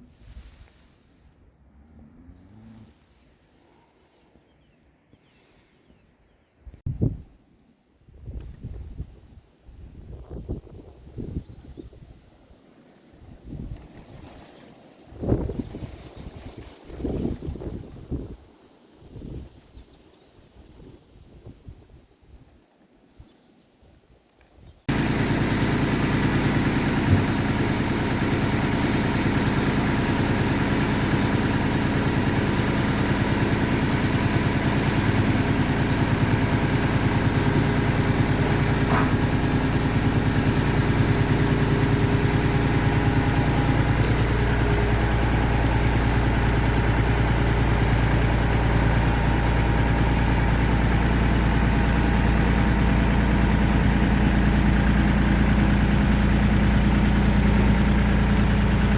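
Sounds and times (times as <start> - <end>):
engine idling: 13.2 - 18.0, 24.9 - 58.9.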